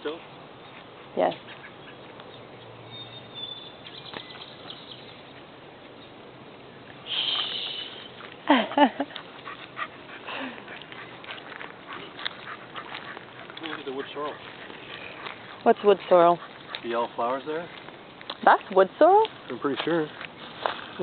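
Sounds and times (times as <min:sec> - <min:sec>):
brief high hiss: 0:07.0 - 0:08.1.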